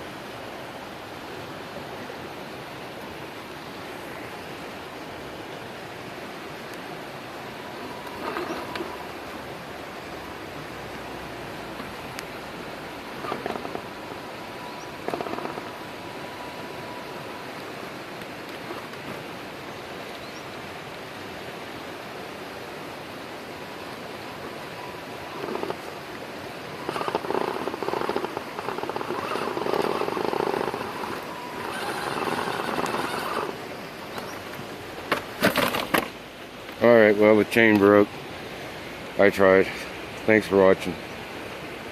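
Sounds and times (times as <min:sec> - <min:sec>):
fast-running creek rushing: 0:00.0 - 0:41.9
vehicle motor in uneven bursts: 0:07.9 - 0:09.3, 0:13.0 - 0:14.0, 0:15.0 - 0:15.9, 0:25.2 - 0:26.0, 0:26.6 - 0:33.7.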